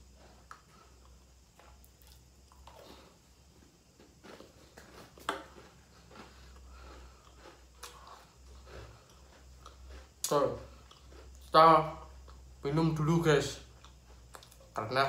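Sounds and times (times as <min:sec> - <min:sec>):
person chewing crunchy cookies: 0:00.0 - 0:15.0.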